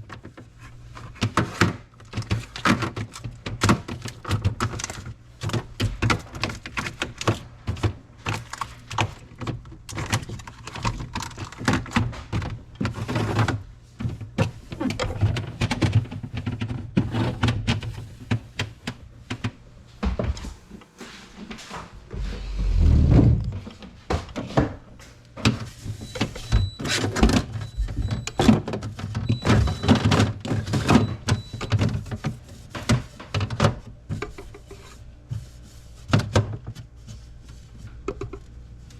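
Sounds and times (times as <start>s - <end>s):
low rumble: 22.0s - 23.6s.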